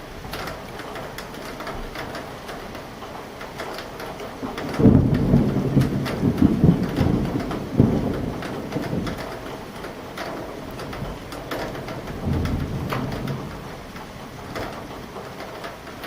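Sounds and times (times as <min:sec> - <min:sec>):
raindrops tapping: 0:00.0 - 0:16.0
thunder rolling: 0:04.4 - 0:15.4.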